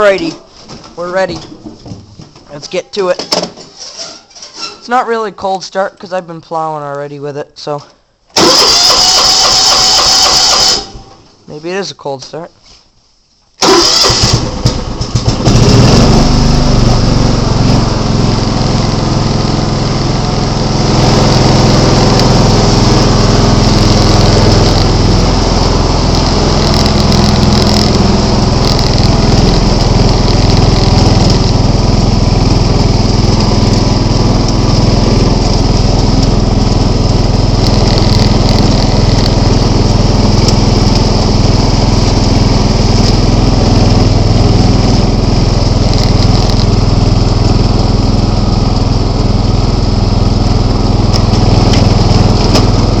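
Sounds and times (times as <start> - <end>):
lawn tractor engine running: 8.4 - 11.0, 13.6 - 53.0.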